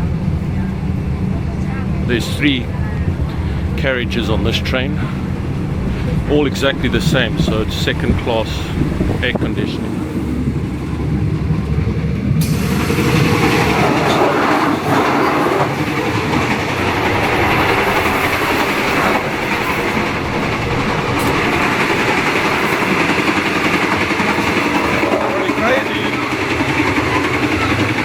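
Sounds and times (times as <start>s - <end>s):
train running on rails: 0.0s - 28.0s.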